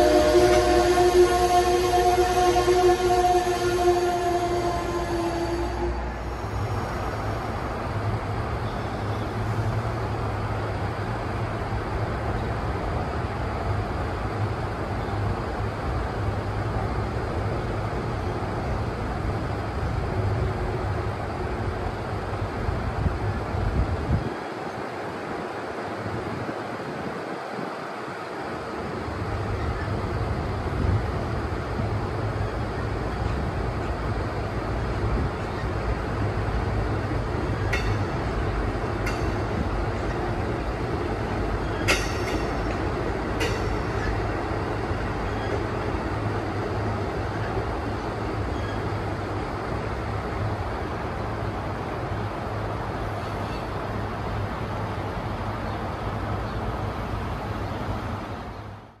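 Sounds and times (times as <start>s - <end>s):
train wheels rumbling on track: 0.0s - 59.0s
sharp clicks of rails: 41.8s - 44.0s.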